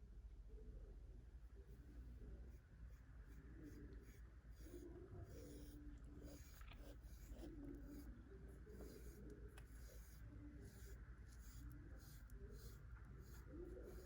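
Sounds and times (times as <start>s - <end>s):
brush stroking through fur: 1.8s - 14.0s.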